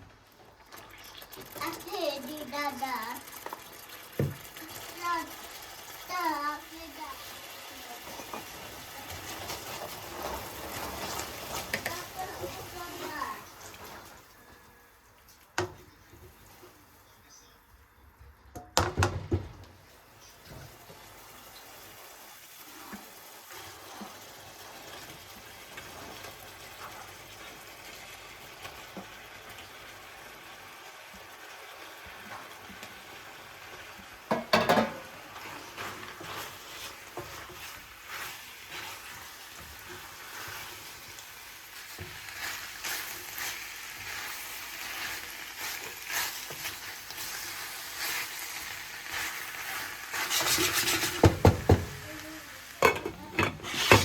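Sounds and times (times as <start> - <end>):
food sizzling in a frying pan: 0.0 - 17.6, 19.0 - 54.0
cookware clattering: 34.3 - 35.1, 52.8 - 54.0.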